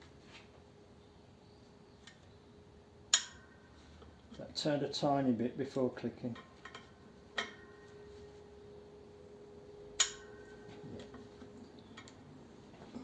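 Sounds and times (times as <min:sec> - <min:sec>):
metallic ringing tone: 0:06.4 - 0:12.7.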